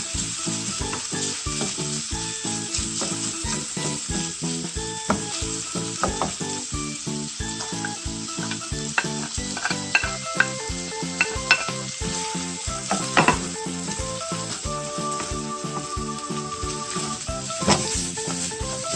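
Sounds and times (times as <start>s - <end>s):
food sizzling in a frying pan: 0.0s - 18.9s
utensil scraping a pan: 11.2s - 13.6s.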